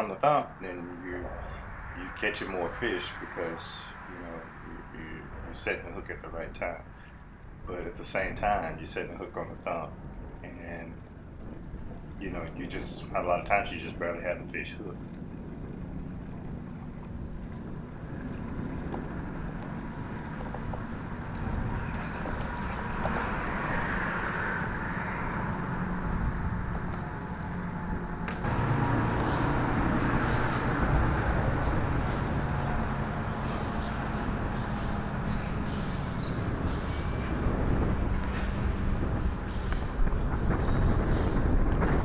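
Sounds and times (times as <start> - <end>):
low engine rumble: 0.0 - 42.0
outdoor background noise: 0.0 - 42.0.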